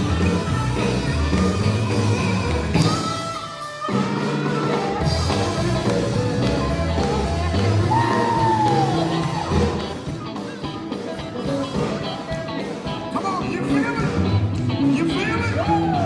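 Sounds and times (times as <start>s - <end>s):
bass and drums: 0.0s - 16.0s
steel guitar lead: 0.0s - 16.0s.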